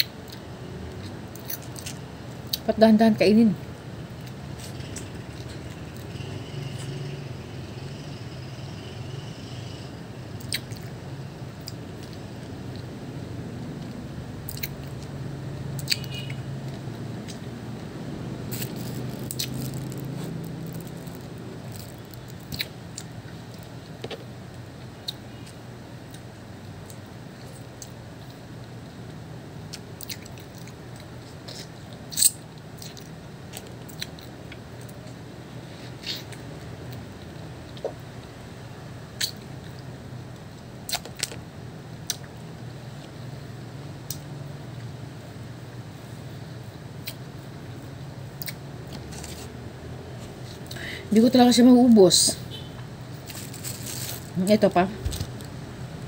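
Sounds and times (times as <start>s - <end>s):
person chewing juicy fruit: 0.0s - 2.7s, 4.2s - 7.0s, 10.4s - 11.0s, 11.6s - 28.5s, 29.7s - 38.3s, 40.9s - 41.4s, 48.3s - 49.6s
steady low hum: 0.0s - 56.0s
wet mouth clicks and chewing: 10.4s - 11.0s, 15.8s - 17.5s, 18.5s - 23.7s, 29.7s - 34.6s, 39.2s - 39.9s, 40.9s - 41.4s, 48.4s - 49.5s.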